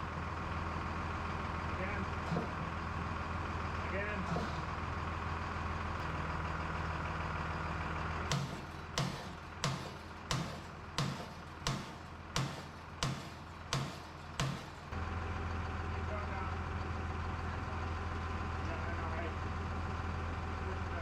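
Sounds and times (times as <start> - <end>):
low engine-like hum: 0.0 - 21.0
sharp knocks with low thuds: 8.3 - 14.9.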